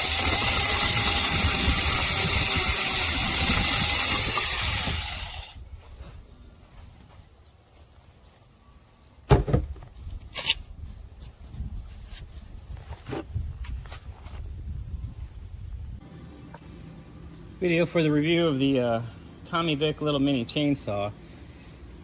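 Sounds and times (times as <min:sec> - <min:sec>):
mini chainsaw cutting wood: 0:00.0 - 0:05.6
sharp knocks: 0:09.3 - 0:09.9.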